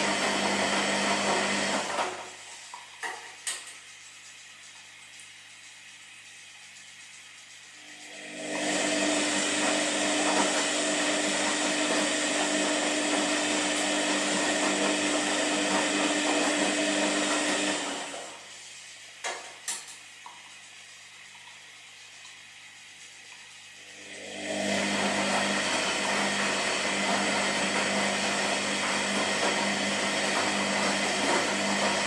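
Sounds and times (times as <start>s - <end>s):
washing machine drum churning: 6.8s - 32.0s.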